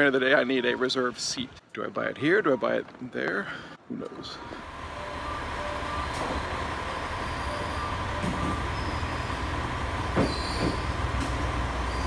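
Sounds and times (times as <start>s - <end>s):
train low rumble: 4.3s - 12.0s.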